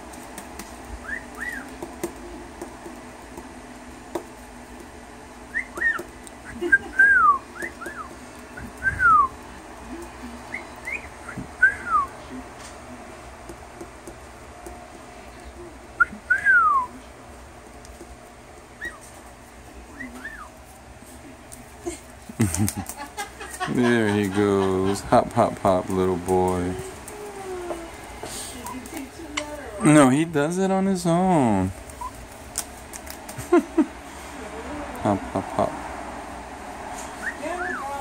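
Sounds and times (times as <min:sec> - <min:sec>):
parrot whistling: 0:01.0 - 0:01.8, 0:05.5 - 0:09.4, 0:10.5 - 0:12.2, 0:16.0 - 0:16.9, 0:18.8 - 0:19.1, 0:19.9 - 0:20.5, 0:37.2 - 0:38.0.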